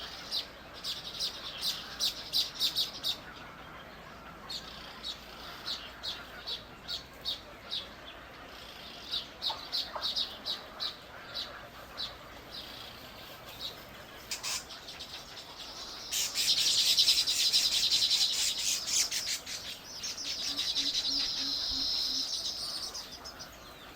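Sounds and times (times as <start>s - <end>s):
buzzy bird chatter: 0.0s - 23.9s
small bird chirping: 8.6s - 23.9s.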